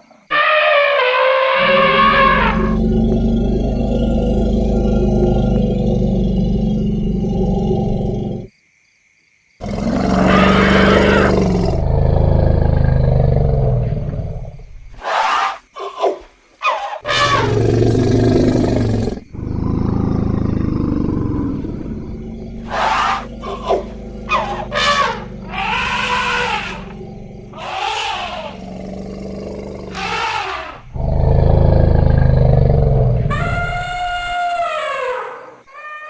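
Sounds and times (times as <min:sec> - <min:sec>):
elephant trumpeting: 0:00.3 - 0:02.8, 0:16.6 - 0:17.6, 0:22.5 - 0:28.7, 0:29.8 - 0:31.0, 0:33.3 - 0:35.5
elephants rumbling and roaring: 0:00.3 - 0:08.5, 0:09.6 - 0:15.3, 0:17.0 - 0:35.1.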